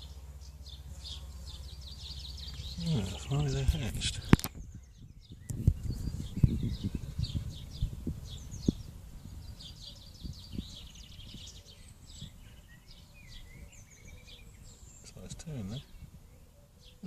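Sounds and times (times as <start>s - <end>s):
small birds chirping: 0.0s - 17.0s
low thumps and rumble: 3.1s - 8.9s.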